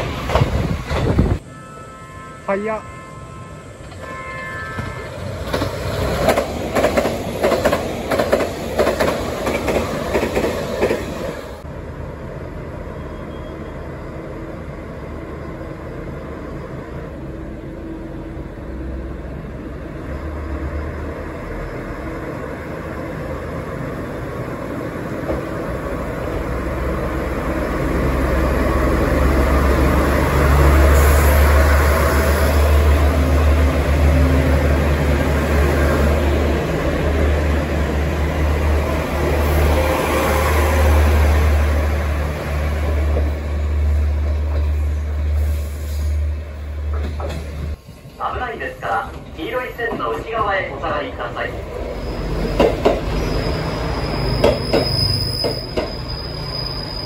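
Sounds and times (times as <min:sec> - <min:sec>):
diesel railcar engine rumble: 0:00.0 - 0:57.0
train wheels clattering: 0:04.8 - 0:11.3, 0:52.4 - 0:53.3, 0:54.3 - 0:56.1.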